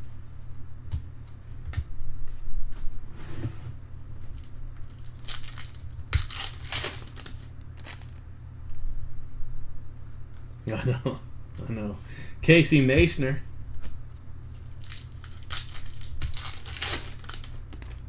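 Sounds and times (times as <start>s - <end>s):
foil wrapper crinkling and tearing: 4.4s - 8.2s, 14.4s - 18.0s.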